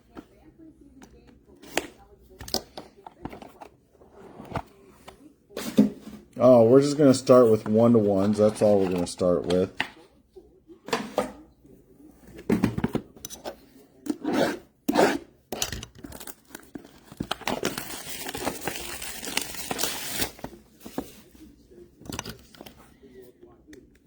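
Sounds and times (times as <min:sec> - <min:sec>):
card packaging tearing: 0:16.0 - 0:21.0
packaging crinkling: 0:16.0 - 0:21.2.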